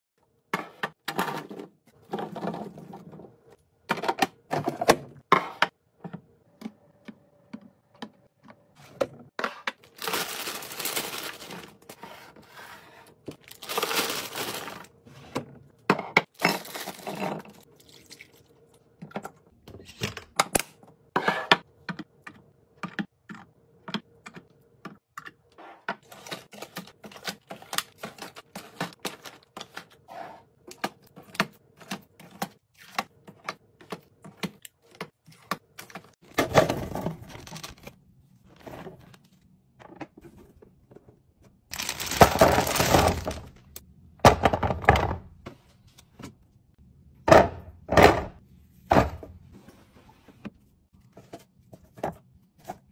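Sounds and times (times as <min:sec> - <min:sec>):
packaging rustling: 0:09.8 - 0:11.9, 0:13.4 - 0:14.9, 0:37.1 - 0:38.0, 0:41.7 - 0:43.6.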